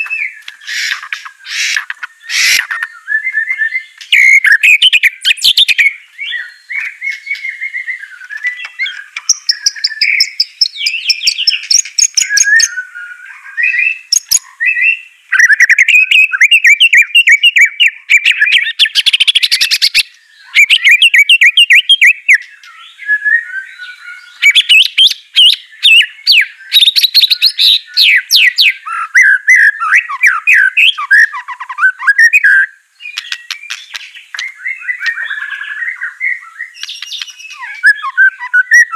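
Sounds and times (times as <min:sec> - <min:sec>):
bird singing whistled phrases: 0:00.0 - 0:38.9.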